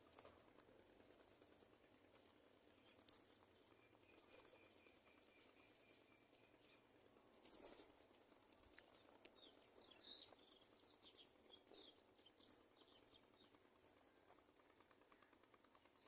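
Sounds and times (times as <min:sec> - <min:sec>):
small bird chirping: 0:01.4 - 0:16.0
soft rustle: 0:06.4 - 0:09.7.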